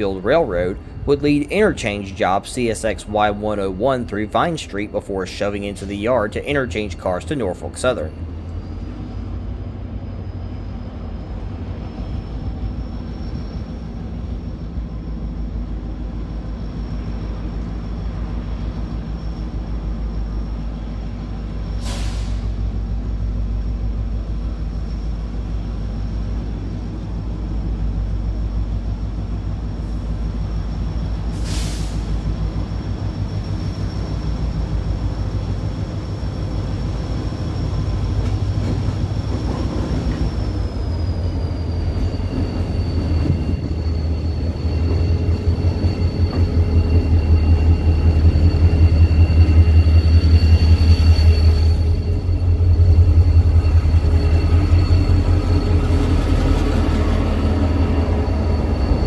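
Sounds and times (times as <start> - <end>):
diesel locomotive rumble: 0.0 - 59.0
thin high whine: 30.7 - 59.0.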